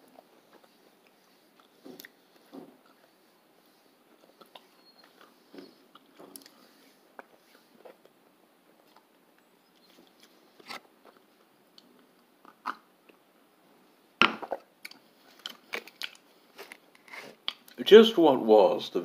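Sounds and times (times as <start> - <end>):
person chewing: 0.1 - 3.2, 4.2 - 8.2, 14.4 - 17.8.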